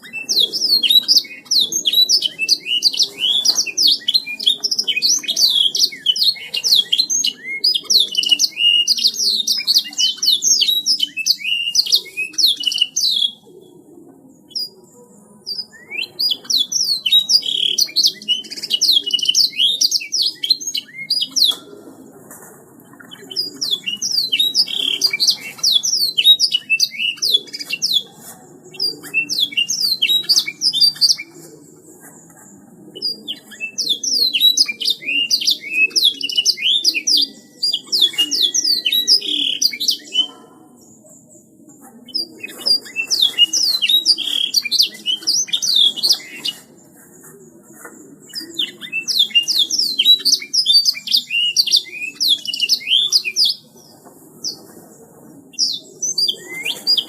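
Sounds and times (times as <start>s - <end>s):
canary singing trills and chirps: 0.0s - 13.4s, 15.5s - 21.7s, 23.0s - 28.1s, 28.7s - 31.3s, 33.0s - 40.9s, 42.1s - 46.7s, 48.3s - 53.7s.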